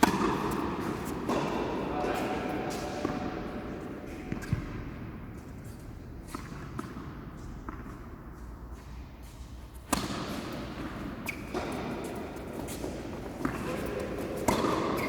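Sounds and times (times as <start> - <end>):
tennis ball hits: 13.4 - 15.0.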